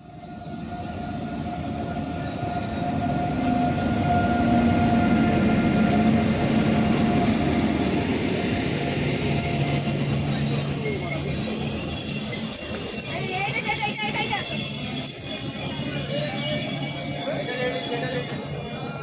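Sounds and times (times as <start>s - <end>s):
locomotive hum: 0.0s - 19.0s.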